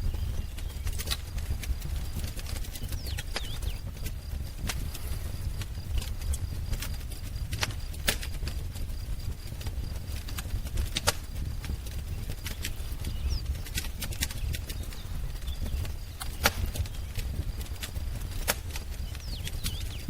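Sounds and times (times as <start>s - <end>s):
bird chirping: 0.0s - 1.2s, 2.2s - 3.9s, 12.2s - 17.5s, 19.0s - 20.0s
wood fire crackling: 0.0s - 20.0s.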